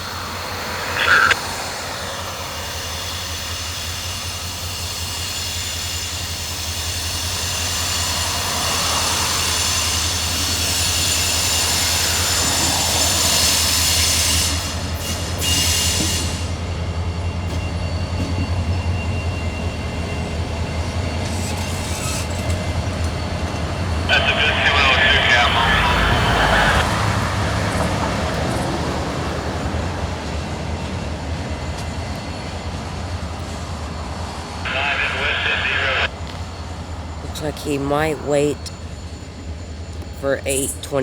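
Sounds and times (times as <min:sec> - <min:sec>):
train wheels squealing: 0:00.0 - 0:24.2, 0:26.0 - 0:34.6
freight train rumbling: 0:00.0 - 0:41.0.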